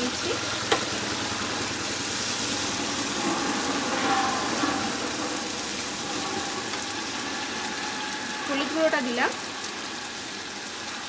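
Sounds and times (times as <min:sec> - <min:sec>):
spice paste sizzling in oil: 0:00.0 - 0:11.0.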